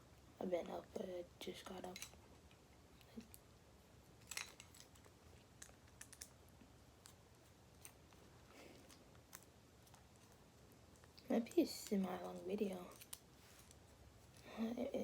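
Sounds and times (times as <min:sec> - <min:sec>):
clicks of small parts handled: 0:01.8 - 0:02.2, 0:04.2 - 0:05.1.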